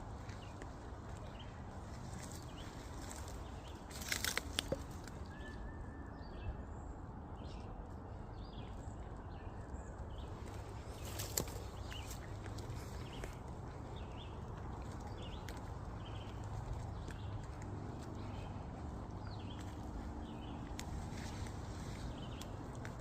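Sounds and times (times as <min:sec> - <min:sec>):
steady low rumble: 0:06.2 - 0:23.0.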